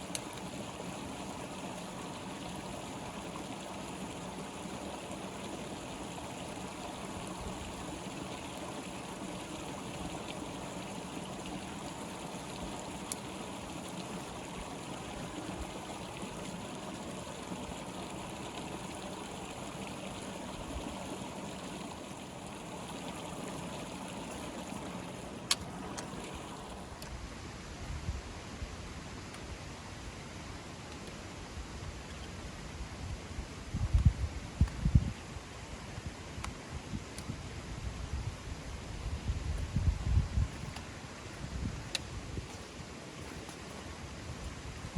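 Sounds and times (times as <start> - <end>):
stream flowing: 0.0 - 27.8, 35.3 - 44.9.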